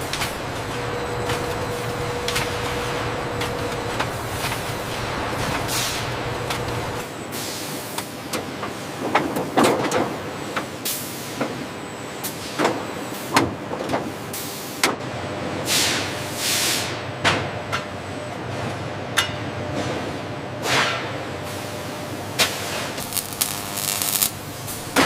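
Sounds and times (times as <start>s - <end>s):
factory machinery humming: 0.0s - 8.0s, 21.6s - 25.0s
bursts of hissing air: 23.0s - 25.0s.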